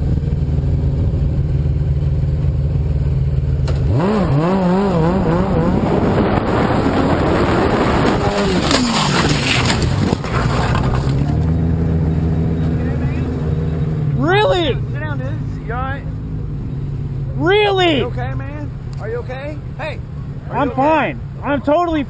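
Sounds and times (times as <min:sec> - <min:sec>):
motorcycle engine running: 0:00.0 - 0:20.5
crash scraping and clattering: 0:08.0 - 0:11.6.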